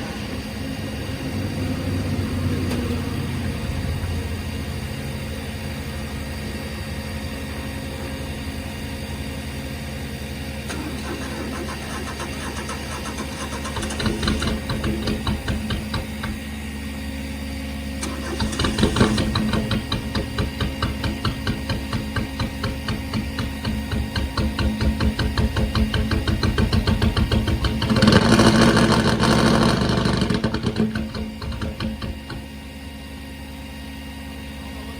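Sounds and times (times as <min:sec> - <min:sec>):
car engine revving: 0:10.7 - 0:16.5, 0:18.0 - 0:32.6
car engine running with pulsing beat: 0:10.7 - 0:16.5, 0:18.0 - 0:32.6.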